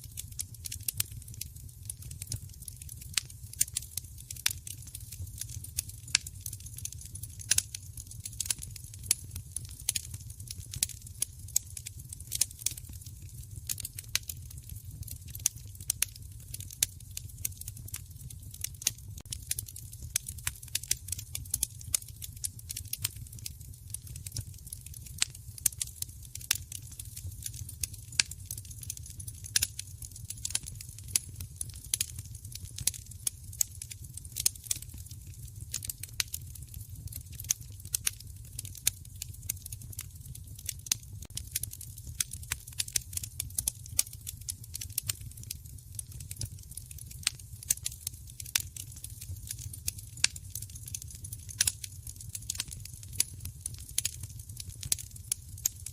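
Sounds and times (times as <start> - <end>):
wood fire crackling and popping: 0.0 - 55.9
low fire rumble: 0.1 - 55.7.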